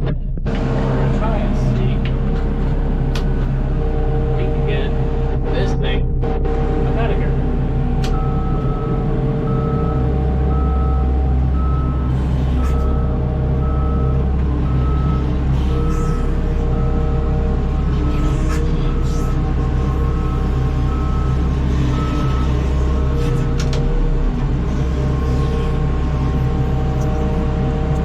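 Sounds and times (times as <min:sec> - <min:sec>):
vehicle engine running: 0:00.0 - 0:28.0
vehicle warning alarm beeping: 0:03.7 - 0:24.1.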